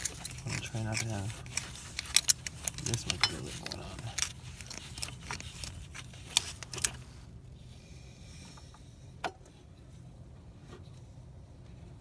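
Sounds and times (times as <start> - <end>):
metal tool scraping carbon: 0.0 - 6.8.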